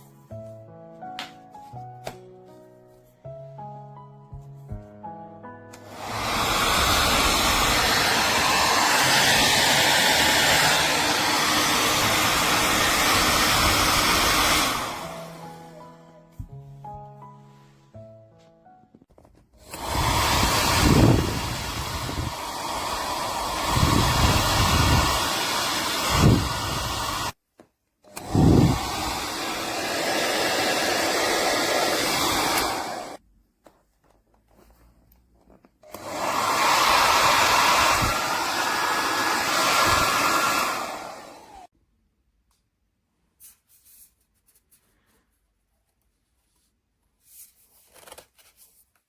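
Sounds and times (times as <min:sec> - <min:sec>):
hair dryer blowing: 0:05.8 - 0:15.8, 0:19.6 - 0:27.4, 0:28.1 - 0:33.2, 0:35.8 - 0:41.7
low gusts of air: 0:19.8 - 0:25.4, 0:28.2 - 0:29.3.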